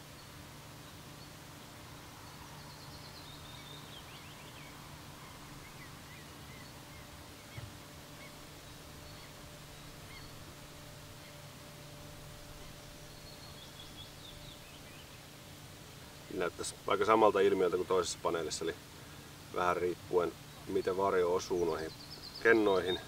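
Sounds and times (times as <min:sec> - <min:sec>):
small bird chirping: 0:00.0 - 0:11.5, 0:12.4 - 0:15.3, 0:20.4 - 0:23.0.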